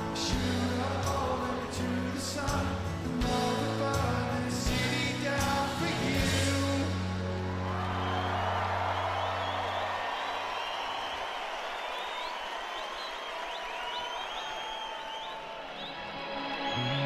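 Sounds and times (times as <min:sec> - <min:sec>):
person singing: 0:00.0 - 0:07.5
live rock band playing: 0:00.0 - 0:08.9
crowd cheering: 0:06.9 - 0:17.0.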